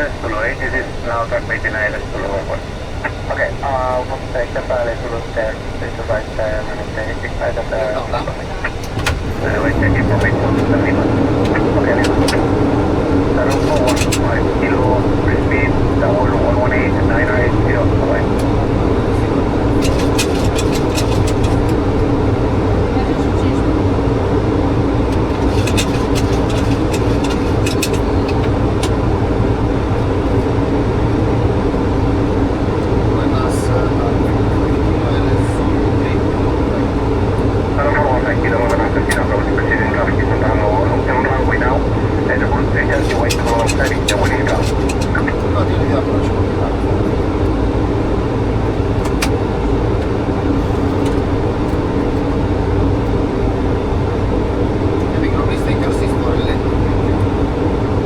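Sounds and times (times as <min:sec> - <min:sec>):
low hum: 0:00.0 - 0:58.0.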